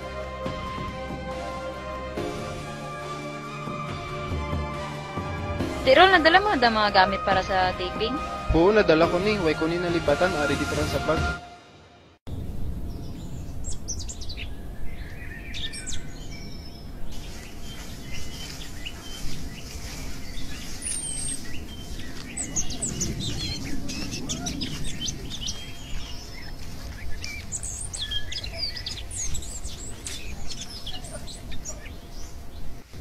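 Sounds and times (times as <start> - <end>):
steady low rumble: 12.2 - 33.0
birds chirping and twittering: 12.3 - 33.0.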